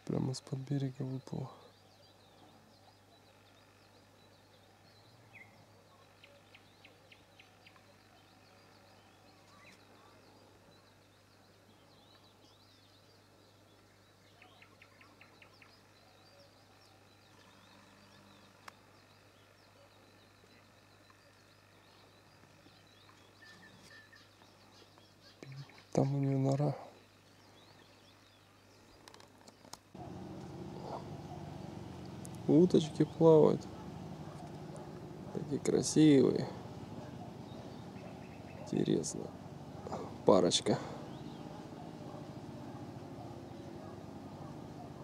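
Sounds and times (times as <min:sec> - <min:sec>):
faint bird chirps: 0:00.0 - 0:45.0
ticking bird calls: 0:29.0 - 0:45.0.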